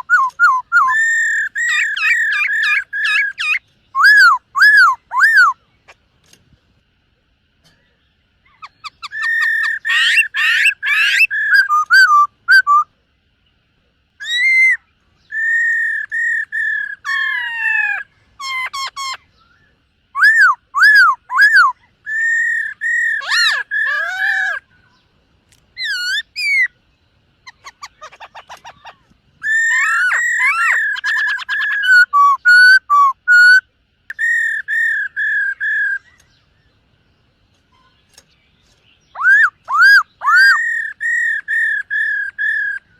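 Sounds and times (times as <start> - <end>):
bird singing whistled phrases: 0.0 - 5.6, 8.5 - 12.9, 14.2 - 24.6, 25.8 - 26.7, 27.5 - 36.4, 39.0 - 42.9.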